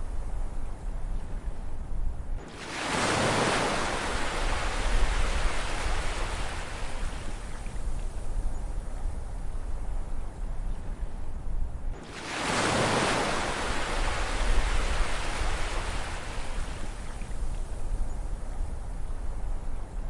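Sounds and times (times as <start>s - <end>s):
ocean wave surging and washing away: 2.4s - 7.6s, 12.0s - 17.1s.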